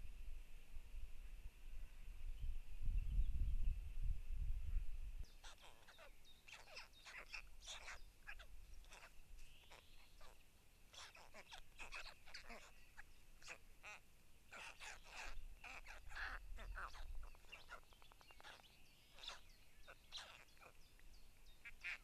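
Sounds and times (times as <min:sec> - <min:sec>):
bird chirps and calls: 0:05.2 - 0:22.0.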